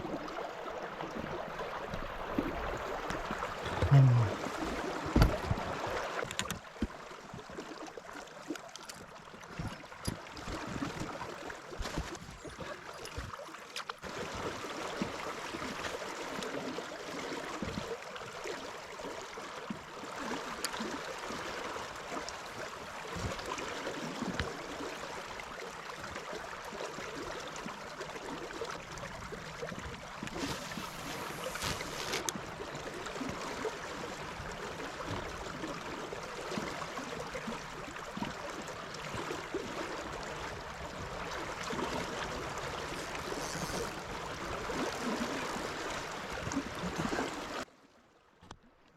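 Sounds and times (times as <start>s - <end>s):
river water rushing: 0.0s - 6.3s
faint clicks and knocks: 6.2s - 7.0s.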